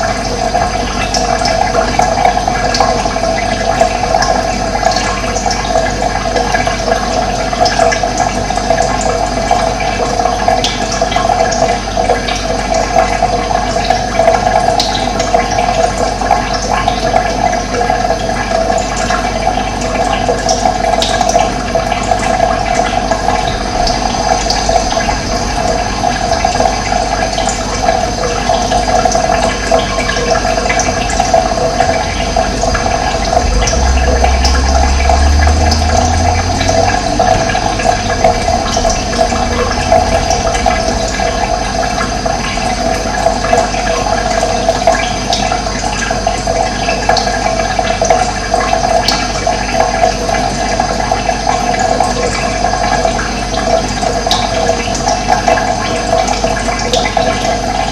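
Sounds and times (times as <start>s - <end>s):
running water rushing: 0.0s - 57.9s
low rumble: 22.4s - 44.9s.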